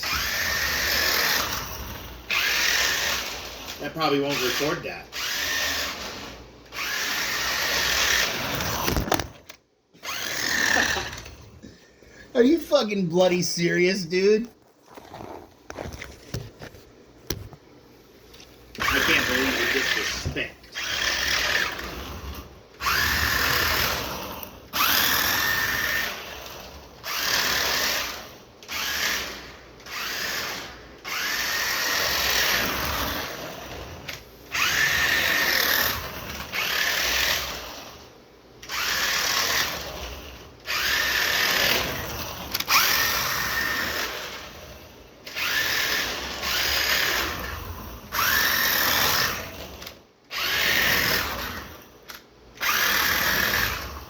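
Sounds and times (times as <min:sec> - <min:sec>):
toy car electric motor whining: 0:00.0 - 0:09.4, 0:10.0 - 0:11.5, 0:18.8 - 0:54.0.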